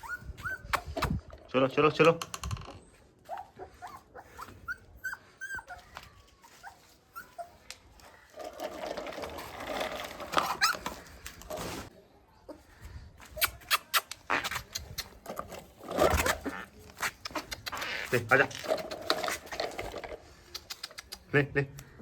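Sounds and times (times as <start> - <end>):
puppy whimpering: 0.0 - 1.1, 3.3 - 7.7
sharp clicks: 20.5 - 21.9.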